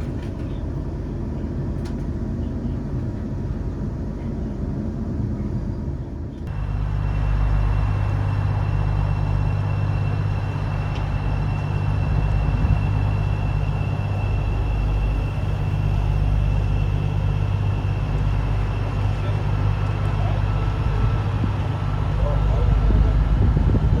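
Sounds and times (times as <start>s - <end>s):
electric train rumble: 0.0s - 24.0s
high-pitched train whine: 6.5s - 24.0s.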